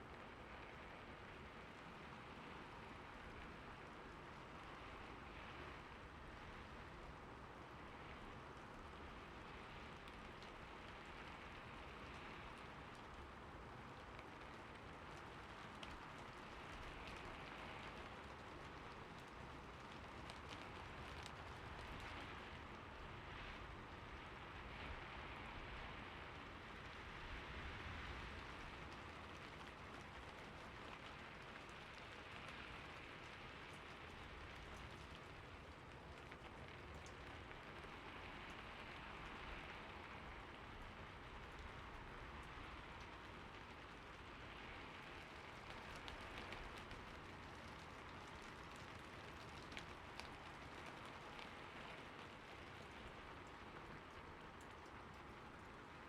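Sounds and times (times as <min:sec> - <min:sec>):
rain falling faintly: 0:00.0 - 0:56.0.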